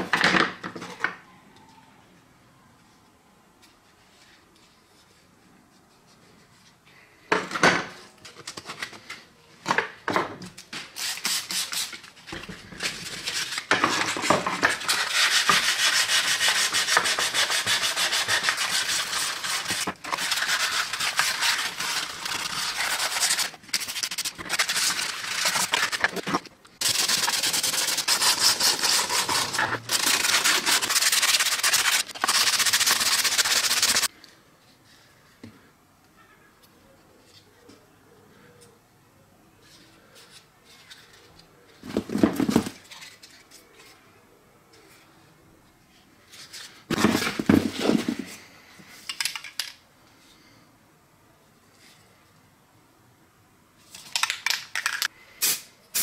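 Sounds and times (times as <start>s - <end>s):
sandpaper rubbing on plastic: 14.7s - 34.1s.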